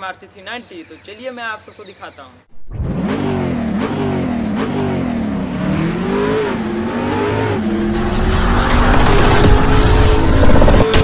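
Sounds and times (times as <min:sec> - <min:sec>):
motorcycle engine revving: 0:02.5 - 0:11.0.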